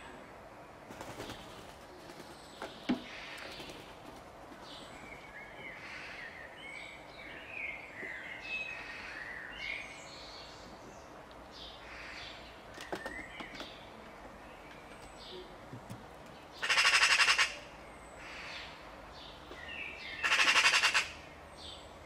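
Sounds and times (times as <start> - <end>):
steady background noise: 0.0 - 22.0
birds chirping and calling: 1.0 - 22.0.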